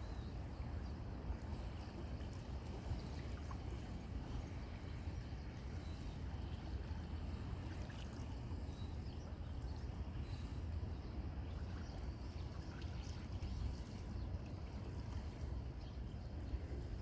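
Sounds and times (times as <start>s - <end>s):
sea rumble: 0.0s - 17.0s.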